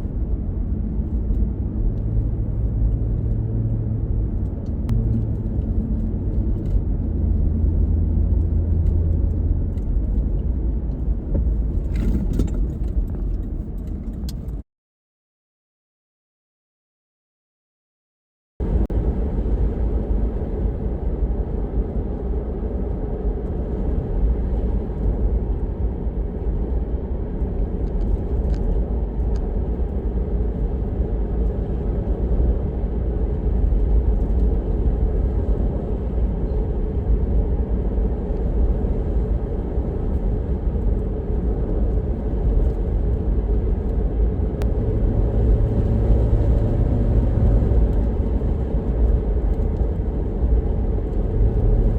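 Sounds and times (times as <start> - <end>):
car driving rumble: 0.0 - 14.6, 18.6 - 51.9
low hum: 33.2 - 51.9.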